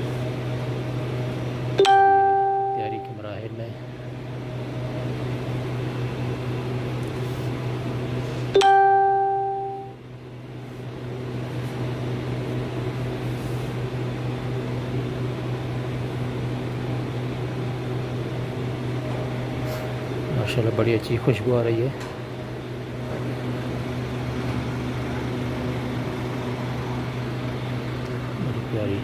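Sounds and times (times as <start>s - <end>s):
low hum of running equipment: 0.0s - 29.0s
loud chime-like ding: 1.8s - 3.2s, 8.6s - 10.0s.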